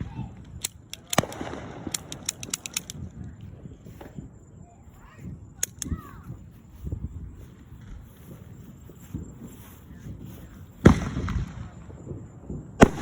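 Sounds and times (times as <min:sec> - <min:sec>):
fireworks bangs: 0:00.0 - 0:02.2, 0:09.1 - 0:13.0
firecrackers popping: 0:00.0 - 0:04.4, 0:07.6 - 0:13.0.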